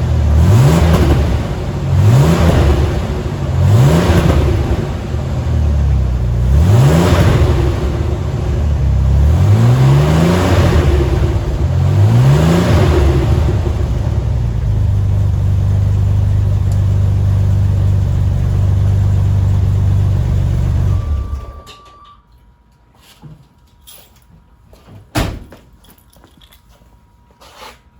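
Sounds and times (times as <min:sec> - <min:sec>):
engine revving and idling: 0:00.0 - 0:21.5.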